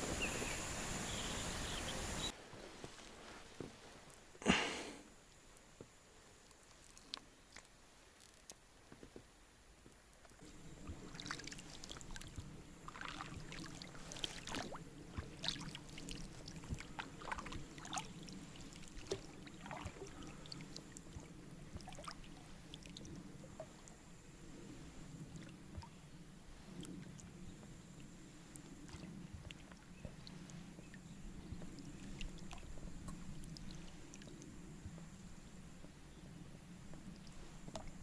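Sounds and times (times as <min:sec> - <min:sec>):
boat engine low hum: 0:00.0 - 0:38.0
water splashing against boat: 0:10.2 - 0:38.0.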